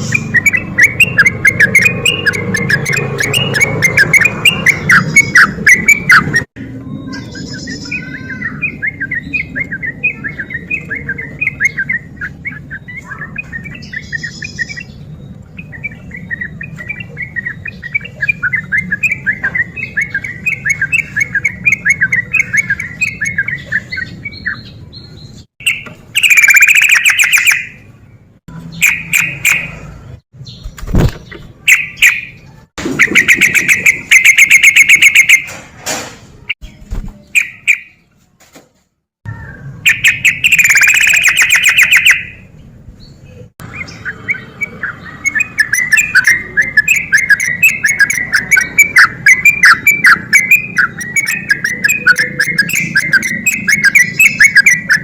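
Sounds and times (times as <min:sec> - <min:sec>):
bird singing rapid trills: 0:00.0 - 0:27.8, 0:30.4 - 0:35.4, 0:39.3 - 0:42.5, 0:43.1 - 0:55.0.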